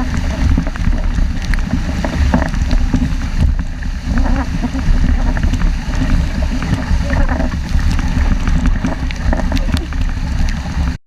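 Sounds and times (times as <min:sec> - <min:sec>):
water splashing along hull: 0:00.0 - 0:11.0
wind buffeting microphone: 0:00.0 - 0:11.0.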